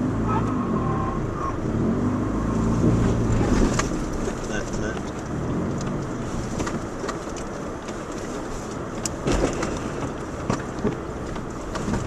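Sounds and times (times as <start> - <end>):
car engine and tyres rumbling: 0.0 - 12.0
knocks and rattles over bumps: 2.8 - 12.0.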